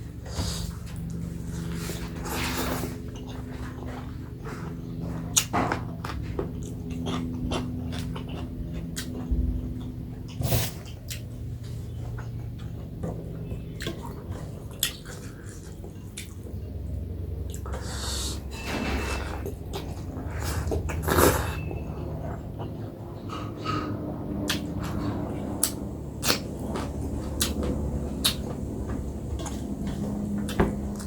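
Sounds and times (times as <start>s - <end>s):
steady low hum: 0.0s - 31.0s
wet chewing and lip smacks: 3.2s - 16.6s, 23.3s - 28.7s.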